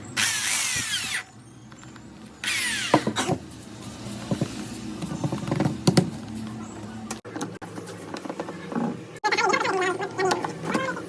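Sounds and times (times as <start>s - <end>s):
electric drill motor winding down: 0.2s - 1.3s, 2.4s - 3.2s.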